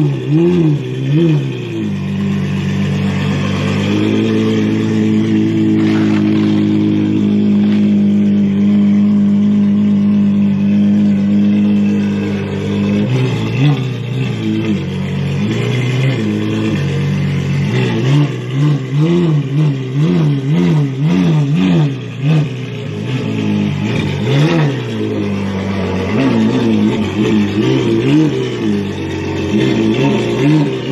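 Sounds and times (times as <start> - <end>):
sports car engine idling and revving: 0.0 - 30.9.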